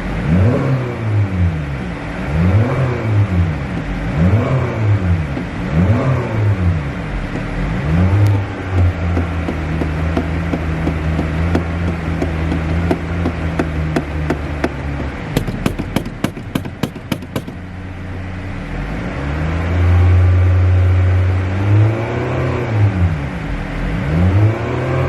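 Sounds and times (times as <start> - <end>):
car engine revving: 0.1 - 25.0.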